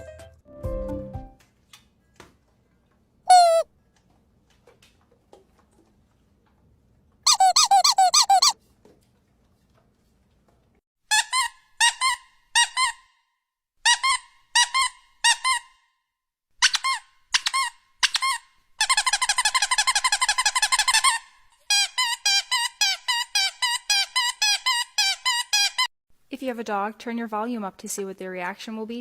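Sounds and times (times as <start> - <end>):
high-pitched squeaks: 3.3 - 3.7, 7.3 - 8.6.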